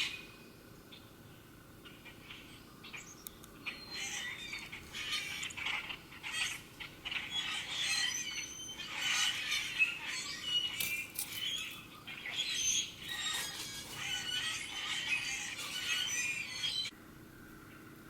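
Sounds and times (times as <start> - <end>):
birds chirping and calling: 0.0 - 17.0.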